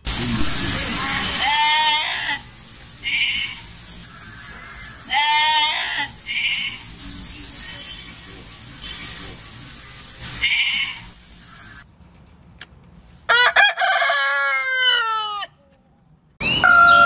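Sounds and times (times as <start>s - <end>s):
sheep and goats bleating: 0.1s - 8.3s, 10.0s - 11.2s.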